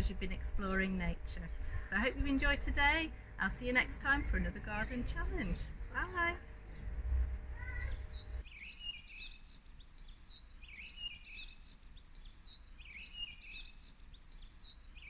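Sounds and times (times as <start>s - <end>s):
low rumble: 0.0s - 8.4s
songbird chirping: 0.0s - 15.0s.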